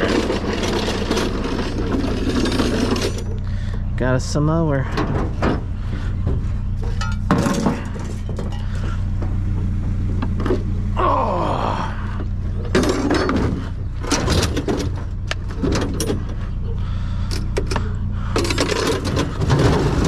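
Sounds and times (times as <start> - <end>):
metal objects clattering: 0.0 - 3.4, 4.9 - 8.9, 12.5 - 16.7, 17.3 - 20.0
steady low hum: 0.0 - 20.0.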